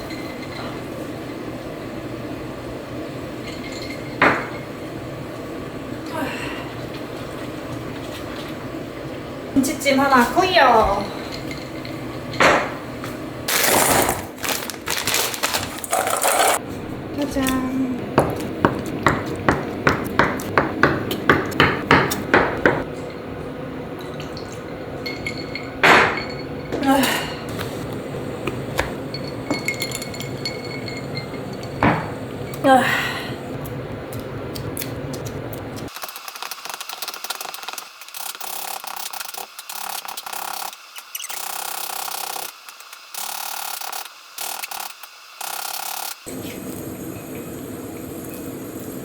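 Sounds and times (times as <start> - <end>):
kitchenware clattering on hard surface: 10.8 - 12.9, 24.0 - 27.2, 28.8 - 32.2
knife chopping on cutting board: 18.2 - 22.8.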